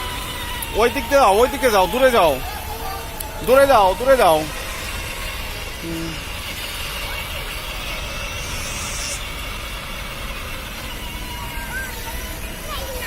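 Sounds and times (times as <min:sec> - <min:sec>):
motorbike engine rumbling: 0:00.0 - 0:12.7
short high squeak: 0:06.1 - 0:09.4.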